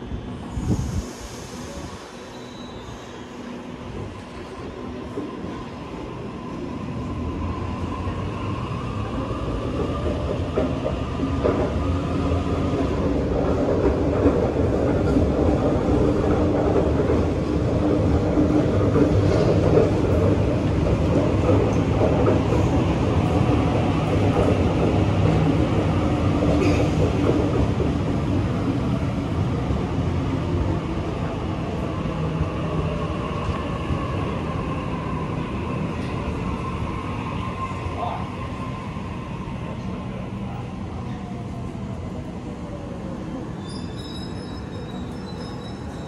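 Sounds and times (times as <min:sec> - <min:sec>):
train wheels rumbling: 0:03.9 - 0:40.0.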